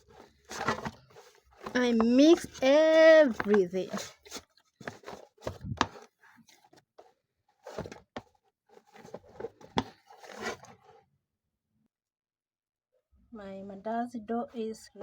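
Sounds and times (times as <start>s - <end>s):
hands kneading dough: 0.0s - 7.0s.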